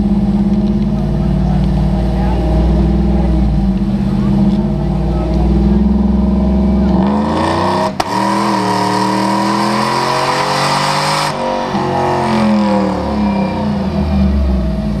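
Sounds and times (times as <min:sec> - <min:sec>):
diesel engine under load: 0:00.0 - 0:15.0
rushing turbo and exhaust: 0:00.0 - 0:15.0.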